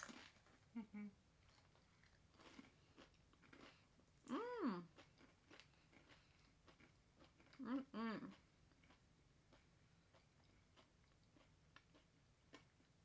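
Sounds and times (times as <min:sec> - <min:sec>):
chips crunching: 0:00.0 - 0:00.6, 0:01.5 - 0:03.8
person humming: 0:00.8 - 0:01.2.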